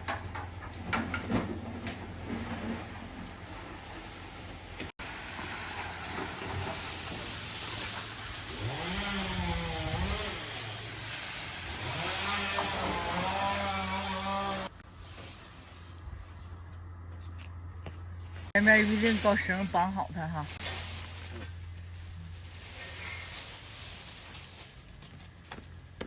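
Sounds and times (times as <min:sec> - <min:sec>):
engine revving: 0:08.5 - 0:11.0, 0:11.6 - 0:14.8.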